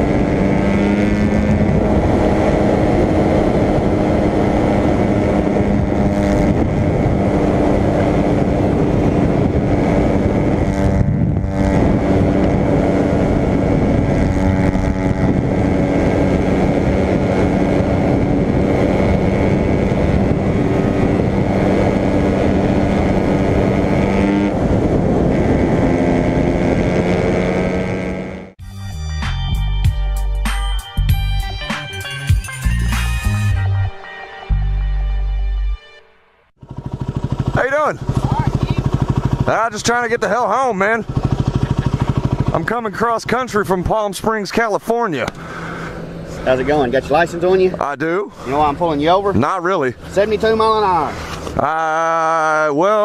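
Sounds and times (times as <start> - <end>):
motorcycle engine running: 0.0 - 28.6, 36.5 - 52.6
wind rush: 0.0 - 28.6.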